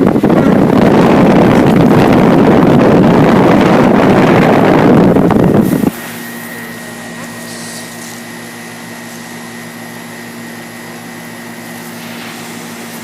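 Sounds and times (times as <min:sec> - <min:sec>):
rush of air: 0:00.0 - 0:07.9
air conditioner hum: 0:00.0 - 0:13.0
faint high whine: 0:00.0 - 0:13.0.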